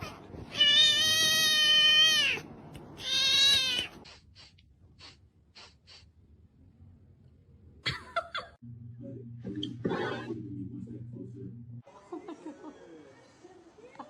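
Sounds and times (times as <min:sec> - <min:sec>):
cat meowing: 0:00.0 - 0:02.4, 0:03.0 - 0:04.1.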